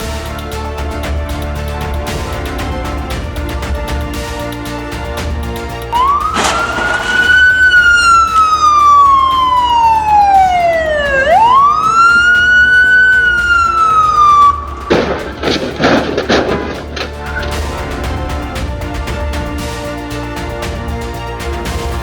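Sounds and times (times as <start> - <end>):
background music: 0.0 - 22.0
loud rough noise: 0.0 - 22.0
emergency siren wailing: 5.9 - 17.5.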